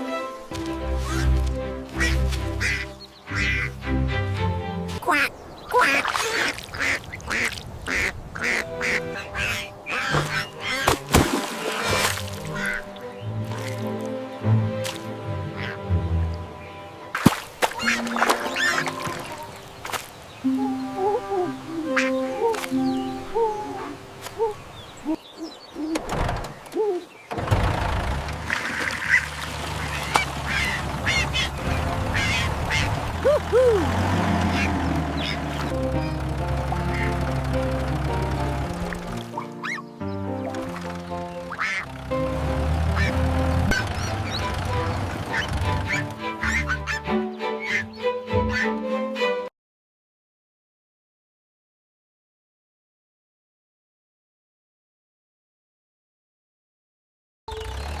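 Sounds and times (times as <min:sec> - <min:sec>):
background music: 0:00.0 - 0:05.1, 0:08.4 - 0:19.8, 0:20.4 - 0:24.2, 0:30.5 - 0:49.5
duck quacking: 0:01.0 - 0:03.8, 0:05.0 - 0:11.1, 0:12.1 - 0:13.0, 0:15.4 - 0:15.9, 0:17.8 - 0:19.2, 0:21.9 - 0:22.5, 0:28.9 - 0:37.4, 0:38.7 - 0:39.9, 0:40.6 - 0:48.8
high chirping calls: 0:21.6 - 0:26.0, 0:29.0 - 0:33.8, 0:34.4 - 0:36.2, 0:39.3 - 0:40.3, 0:42.8 - 0:48.8.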